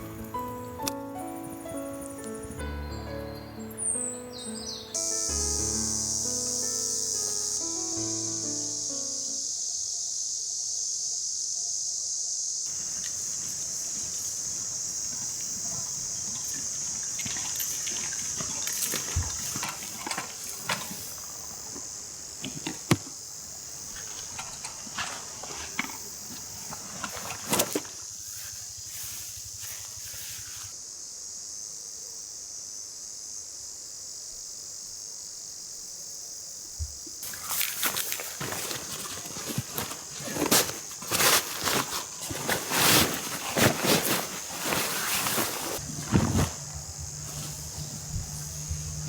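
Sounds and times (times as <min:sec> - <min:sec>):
insects chirring: 0:00.0 - 0:49.0
camp gear clicks and knocks: 0:12.7 - 0:28.1, 0:36.8 - 0:48.4
rustles: 0:12.7 - 0:30.9, 0:36.8 - 0:49.0.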